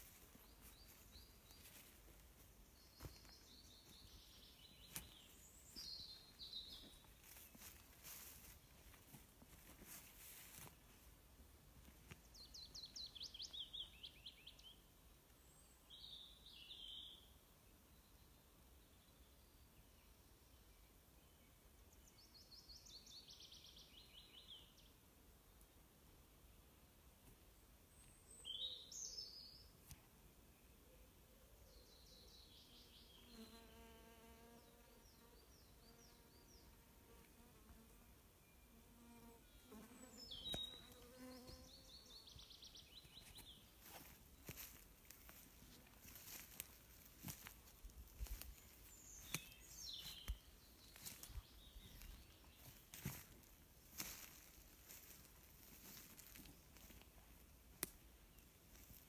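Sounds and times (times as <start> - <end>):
small birds chirping: 0.0 - 9.0, 39.5 - 57.1
songbird singing: 0.0 - 9.0, 12.1 - 25.9, 27.5 - 37.8, 38.4 - 57.4
faint rustle: 6.7 - 11.1, 39.7 - 59.0.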